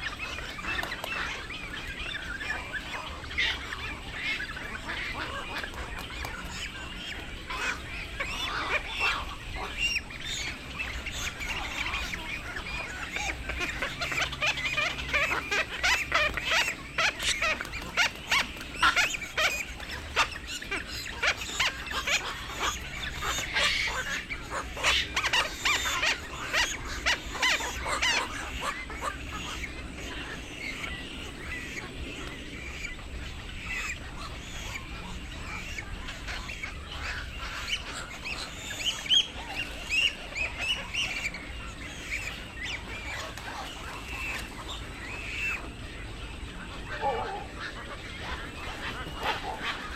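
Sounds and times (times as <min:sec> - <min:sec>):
chorus of harsh heron calls: 0:33.6 - 0:49.9.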